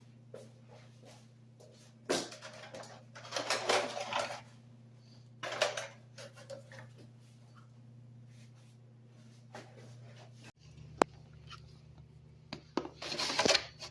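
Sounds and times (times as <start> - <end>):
steady low hum: 0.0 - 13.9
hard objects clattering: 2.1 - 4.5, 5.4 - 6.9.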